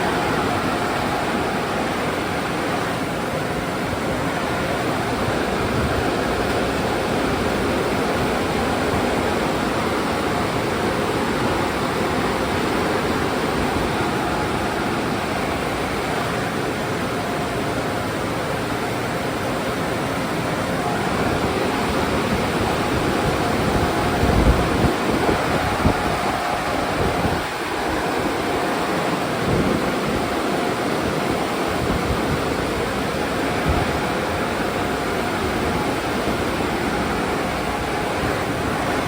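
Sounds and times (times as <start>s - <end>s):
car wash spraying water: 0.0s - 39.0s.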